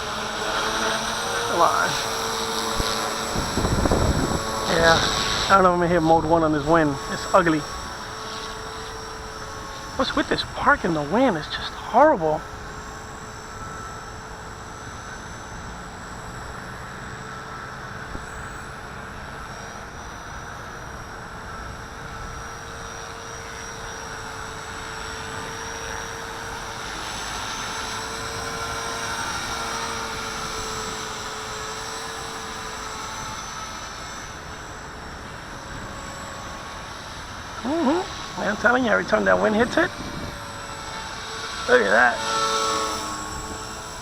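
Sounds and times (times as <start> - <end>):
rc helicopter rotor whine: 0.0 - 44.0
wind rumbling on microphone: 0.1 - 8.5, 35.2 - 41.0.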